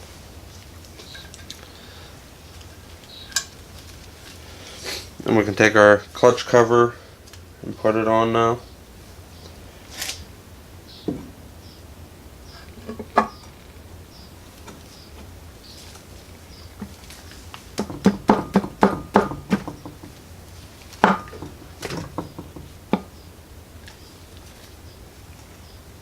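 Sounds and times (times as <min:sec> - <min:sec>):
metal cover knocking on engine: 0:11.1 - 0:11.4, 0:17.8 - 0:20.2, 0:21.0 - 0:23.1.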